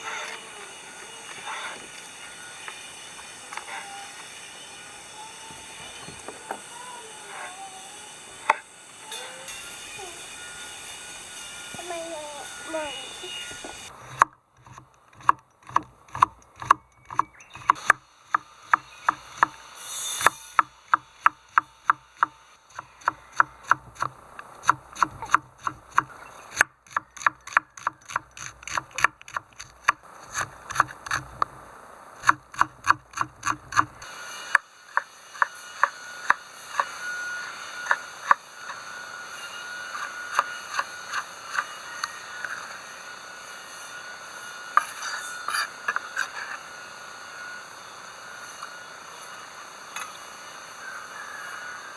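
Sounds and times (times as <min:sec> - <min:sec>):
tool striking wood: 0:13.2 - 0:31.5, 0:32.2 - 0:42.8.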